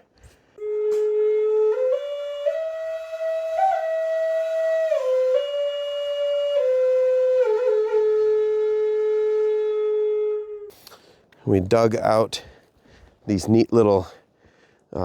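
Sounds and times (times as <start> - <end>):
slow flute melody: 0.5 - 10.8.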